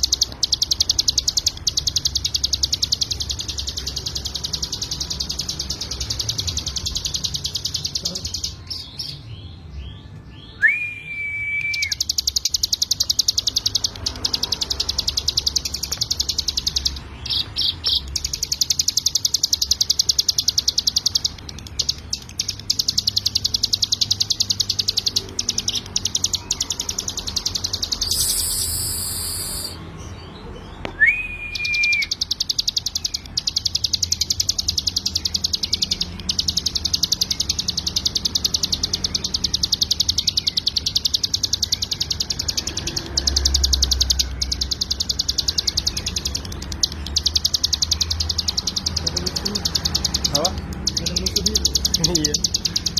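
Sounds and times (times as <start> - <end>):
bird singing rapid high notes: 0.0 - 52.9.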